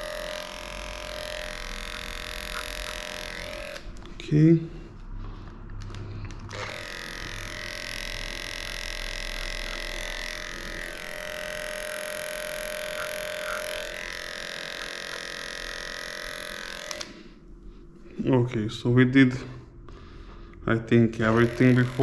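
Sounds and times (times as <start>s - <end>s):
electric clipper buzzing: 0.0s - 4.1s, 6.5s - 17.2s, 21.1s - 22.0s.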